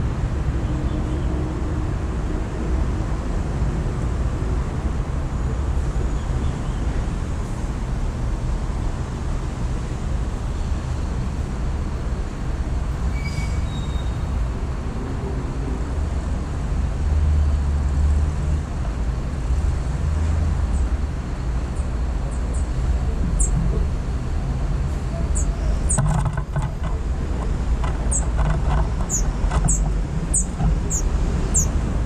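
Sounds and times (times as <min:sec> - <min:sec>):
distant city traffic rumble: 0:00.0 - 0:32.0
high bird chirps: 0:23.4 - 0:23.6, 0:29.1 - 0:31.8.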